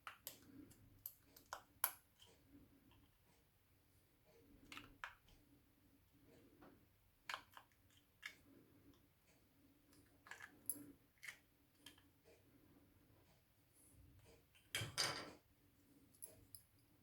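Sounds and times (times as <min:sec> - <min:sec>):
small plastic clicks and taps: 0:07.2 - 0:08.4.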